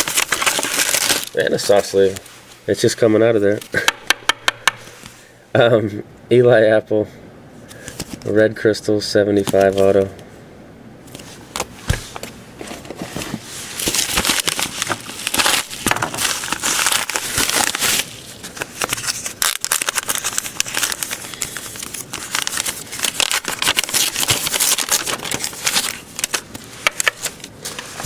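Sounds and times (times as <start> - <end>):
packaging crinkling: 0.0 - 2.3, 11.2 - 28.0.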